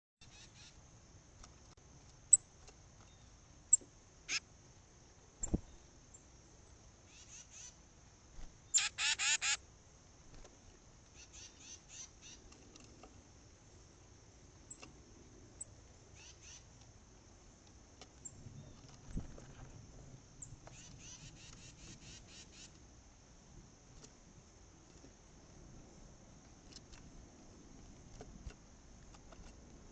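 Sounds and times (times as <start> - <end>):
titmice calling: 8.7 - 9.6.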